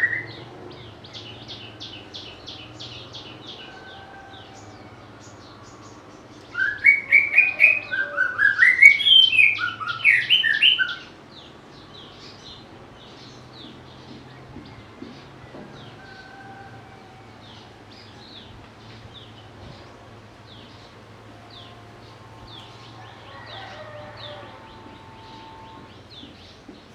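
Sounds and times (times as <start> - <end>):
bird singing whistled notes: 6.5 - 11.1.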